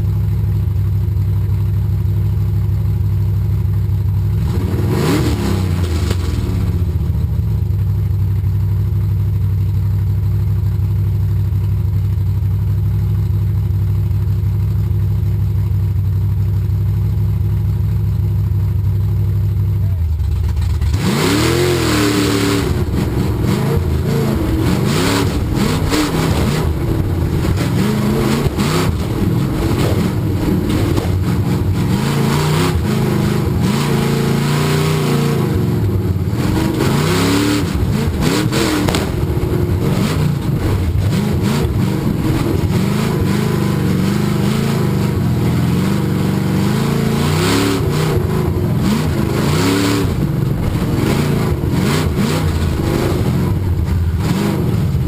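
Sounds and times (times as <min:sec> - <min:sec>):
truck engine revving hard: 0:04.4 - 0:07.1, 0:20.5 - 0:55.0.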